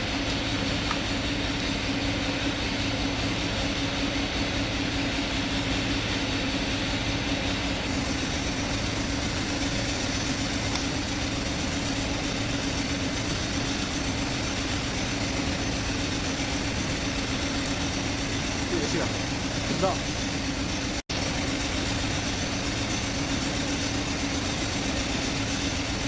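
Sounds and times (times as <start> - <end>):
steady droning hum: 6.4 - 26.0.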